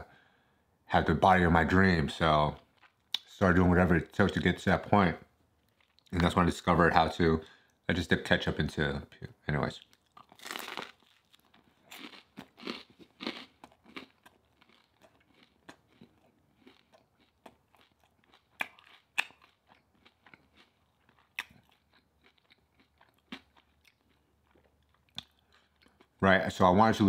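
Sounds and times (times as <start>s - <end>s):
chewing food: 2.5s - 3.4s, 5.6s - 6.4s, 9.7s - 26.2s.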